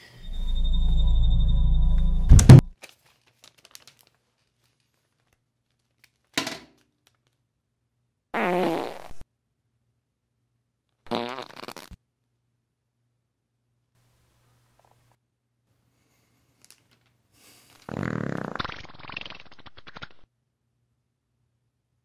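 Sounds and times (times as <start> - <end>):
comedic fart sounds: 8.4 - 9.2, 11.1 - 12.0, 17.9 - 20.2.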